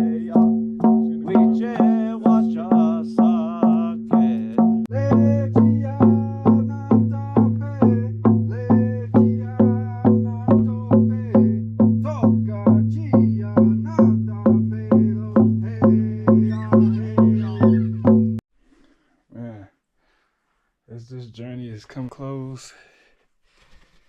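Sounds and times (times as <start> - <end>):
drum struck steadily: 0.0 - 18.4.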